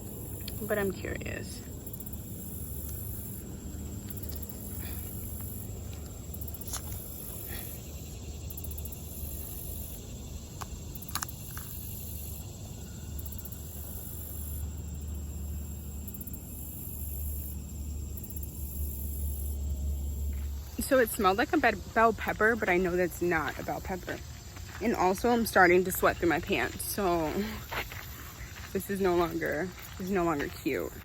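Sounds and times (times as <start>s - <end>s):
insects calling in pulses: 0.0s - 31.0s.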